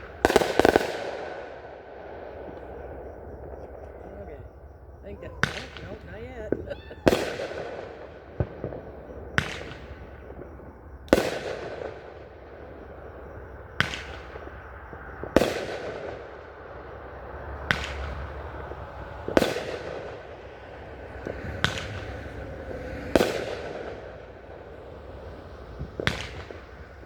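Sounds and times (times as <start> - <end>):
fireworks bangs with rumbling echo: 0.0 - 27.0.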